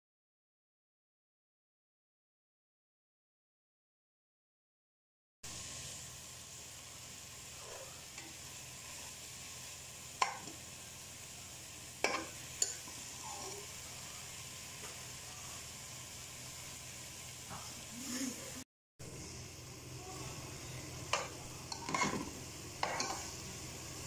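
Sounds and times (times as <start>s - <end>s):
food sizzling in a pot: 5.4s - 24.0s
spatula knocking against pot: 10.2s - 10.5s
spatula stirring: 12.0s - 13.6s, 21.0s - 23.4s.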